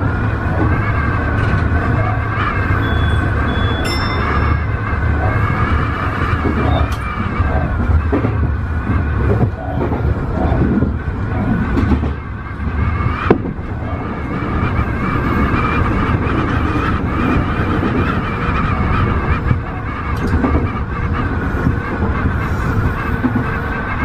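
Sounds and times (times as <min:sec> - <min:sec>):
train running rumble: 0:00.0 - 0:24.0.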